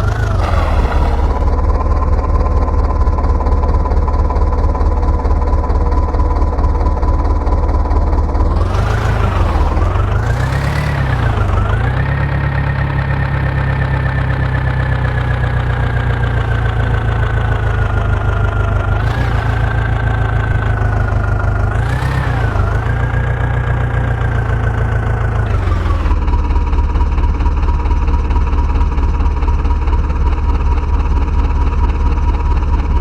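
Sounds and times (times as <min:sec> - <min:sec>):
diesel engine revving: 0:00.0 - 0:03.2, 0:06.3 - 0:26.3.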